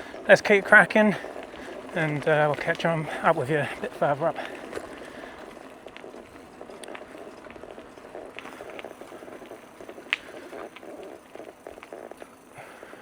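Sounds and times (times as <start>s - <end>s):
bicycle tyre noise on trail: 0.0s - 13.0s
small clicks: 4.4s - 13.0s.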